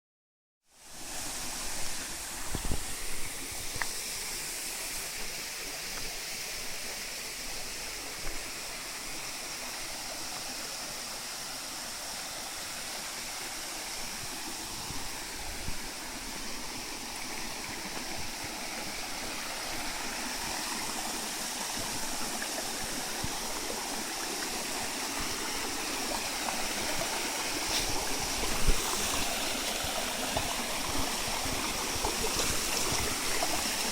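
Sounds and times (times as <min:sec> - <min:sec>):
waterfall splashing: 0:00.8 - 0:05.8, 0:18.5 - 0:33.9.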